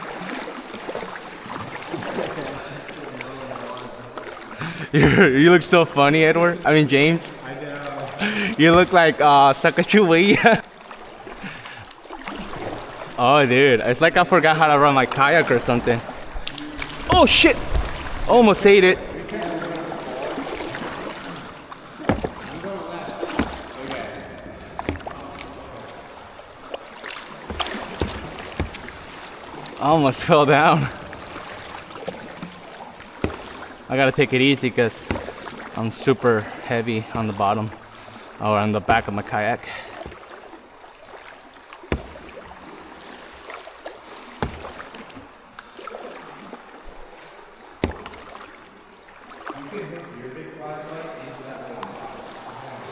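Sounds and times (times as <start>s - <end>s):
paddle splashing and dripping: 0.0s - 52.9s
water moving around kayak: 0.0s - 52.9s
knocks against boat: 8.5s - 30.3s, 31.0s - 36.6s, 38.6s - 40.6s, 41.3s - 49.6s
sharp knocks: 21.9s - 24.0s, 47.8s - 48.4s.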